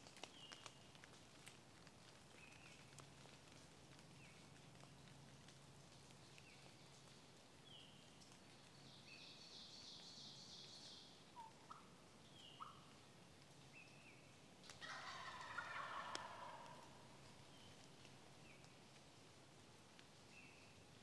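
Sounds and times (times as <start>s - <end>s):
turkey gobbling: 11.4s - 11.9s, 14.7s - 17.0s.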